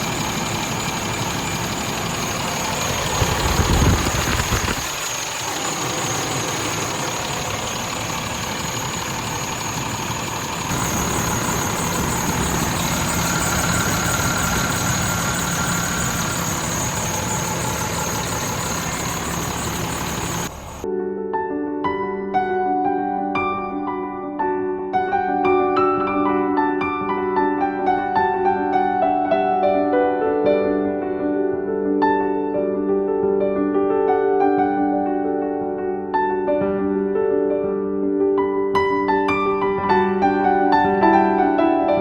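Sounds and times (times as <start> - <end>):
truck machinery hissing and whining: 0.0 - 20.8.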